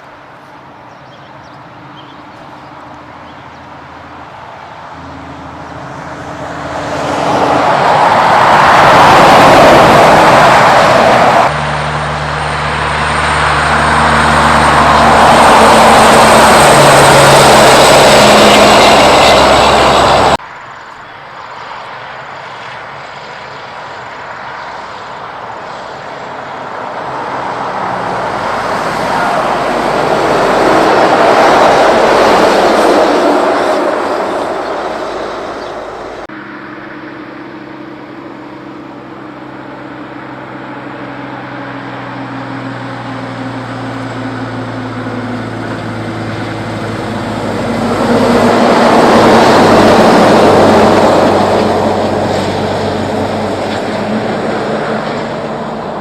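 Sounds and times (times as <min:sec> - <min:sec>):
steady engine hum: 0:00.0 - 0:56.0
trucks passing by: 0:00.0 - 0:56.0.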